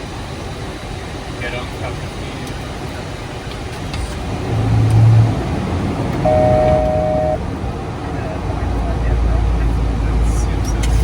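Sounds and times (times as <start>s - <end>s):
steady electronic tone: 6.3s - 7.4s.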